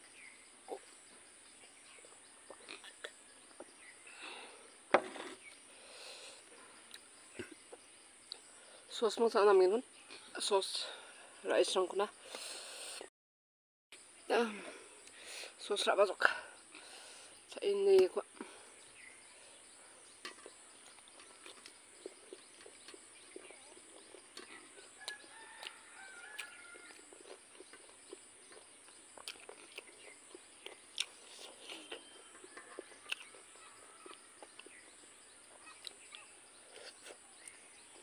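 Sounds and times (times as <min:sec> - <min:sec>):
soft chewing clicks: 0:20.4 - 0:34.8, 0:35.6 - 0:37.6.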